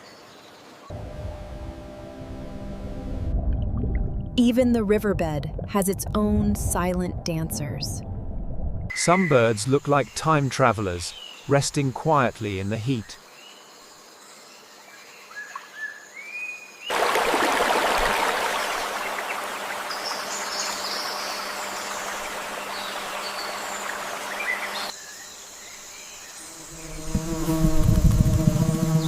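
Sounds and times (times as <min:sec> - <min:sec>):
low hum with overtones: 0:00.9 - 0:08.9
rushing water: 0:16.9 - 0:24.9
high insect buzzing: 0:19.4 - 0:29.0.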